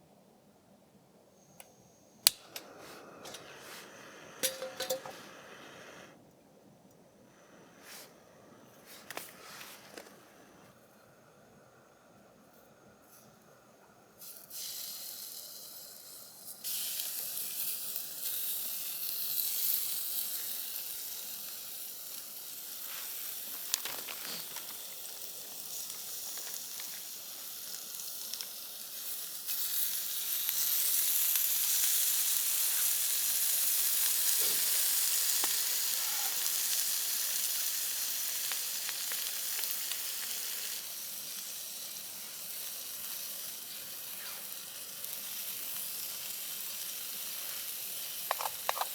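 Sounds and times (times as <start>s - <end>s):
food sizzling in a hot pan: 2.3s - 6.1s, 14.2s - 48.9s.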